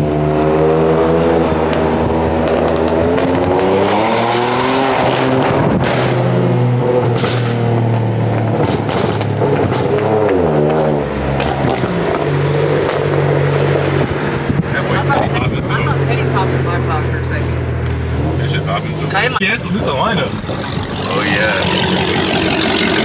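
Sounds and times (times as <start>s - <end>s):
car engine revving: 0.0s - 23.0s
sharp exhaust pops: 1.6s - 13.3s.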